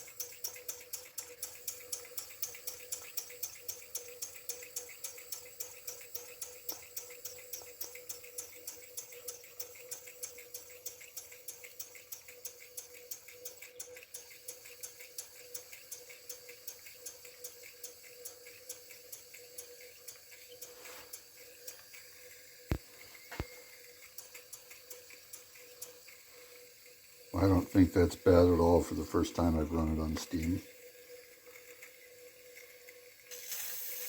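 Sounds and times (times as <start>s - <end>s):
toy steam engine chuffing: 0.0s - 34.0s.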